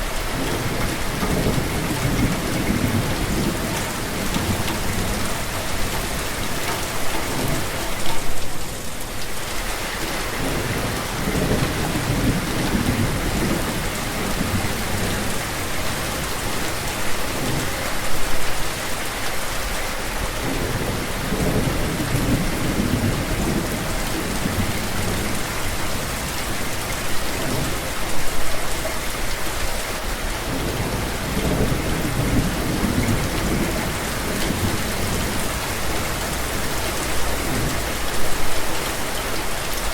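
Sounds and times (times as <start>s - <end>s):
steady rain falling: 0.0s - 39.9s
thunder rumbling: 0.3s - 9.0s, 10.3s - 17.8s, 20.4s - 28.0s, 30.4s - 38.5s.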